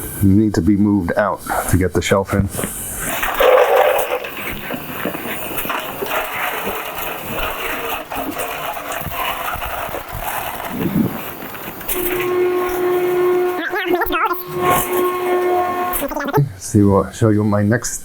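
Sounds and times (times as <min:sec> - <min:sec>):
lawnmower wheeled on garage floor: 0:01.5 - 0:16.4
high whistling tone: 0:10.2 - 0:16.4.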